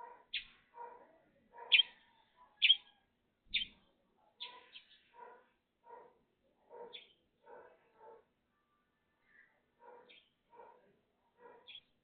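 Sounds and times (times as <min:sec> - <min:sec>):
soft low bird sounds: 0:00.0 - 0:00.7, 0:01.6 - 0:05.6
bird high-pitched calls: 0:00.3 - 0:00.6, 0:01.7 - 0:03.8.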